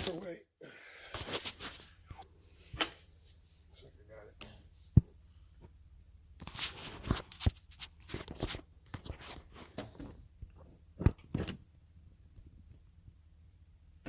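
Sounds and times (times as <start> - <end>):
tools clinking and scraping: 2.6 - 3.1, 11.0 - 11.6.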